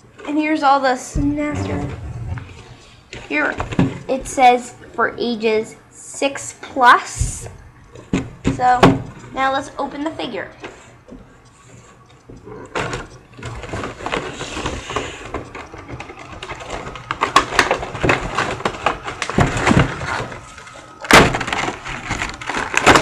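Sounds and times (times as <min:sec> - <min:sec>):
packaging crinkling: 0:13.5 - 0:23.0.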